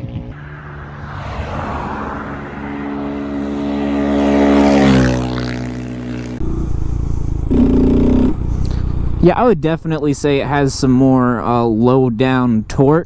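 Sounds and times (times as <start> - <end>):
motorcycle engine accelerating: 0.0 - 9.7.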